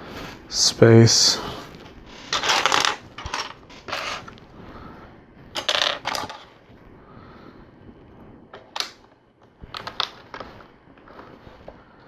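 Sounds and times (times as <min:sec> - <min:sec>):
plastic pieces clattering: 0:02.3 - 0:04.3, 0:05.6 - 0:06.6.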